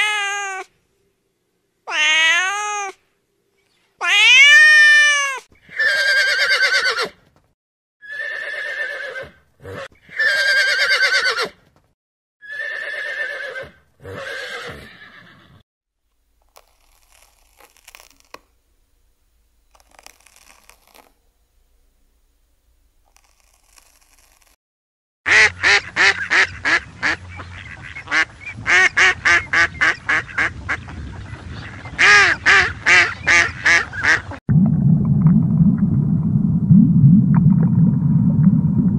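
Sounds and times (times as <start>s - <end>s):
horse whinnying: 4.0s - 7.2s, 8.0s - 11.6s, 12.4s - 15.6s
ducks quacking: 25.3s - 34.4s.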